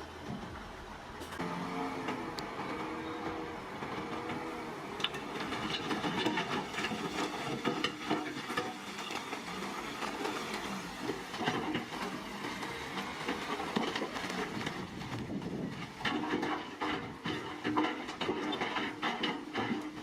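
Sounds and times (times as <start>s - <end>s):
diesel engine running: 0.0s - 20.0s
metallic clanks and rattles: 5.0s - 9.4s.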